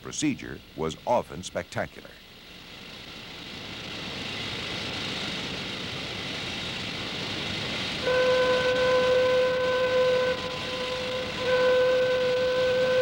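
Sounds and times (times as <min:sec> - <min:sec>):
steady hiss: 0:00.0 - 0:13.0
warning horn: 0:08.0 - 0:13.0.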